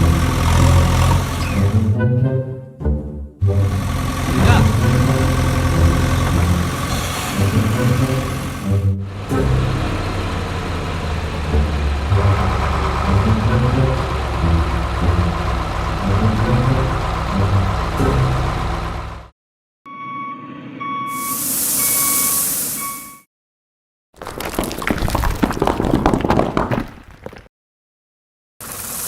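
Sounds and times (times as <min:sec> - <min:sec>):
truck engine revving: 0:00.0 - 0:02.1, 0:03.4 - 0:19.3
air brake hiss: 0:06.9 - 0:07.6, 0:21.2 - 0:23.2
reversing alarm beeping: 0:19.9 - 0:23.3.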